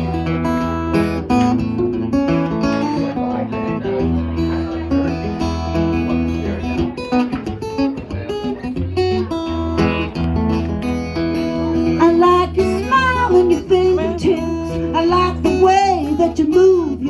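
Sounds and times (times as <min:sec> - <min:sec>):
acoustic guitar folk music: 0:00.0 - 0:17.0.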